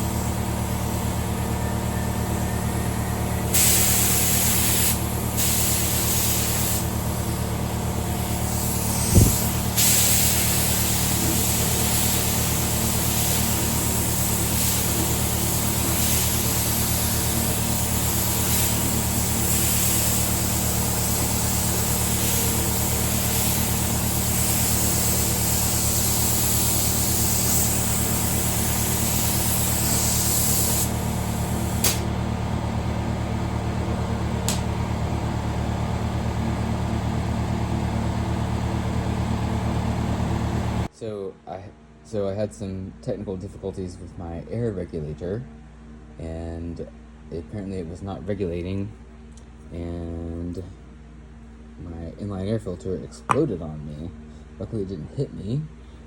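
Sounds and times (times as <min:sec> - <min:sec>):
air compressor running: 0:00.0 - 0:40.9
spray gun air hiss: 0:02.7 - 0:32.2.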